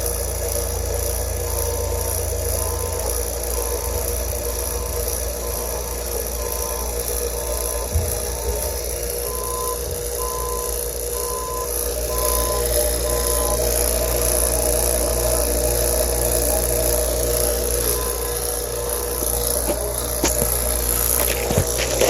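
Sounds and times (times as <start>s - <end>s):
vacuum pump running: 0.0s - 22.0s
high beep: 9.3s - 13.6s.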